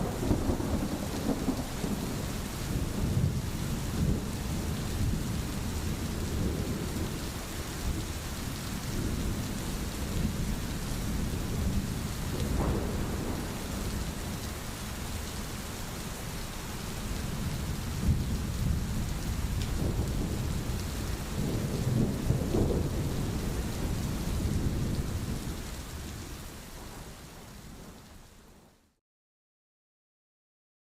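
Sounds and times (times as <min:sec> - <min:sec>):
rolling thunder: 0:00.0 - 0:15.0, 0:17.2 - 0:26.2
rain hiss: 0:00.0 - 0:29.0.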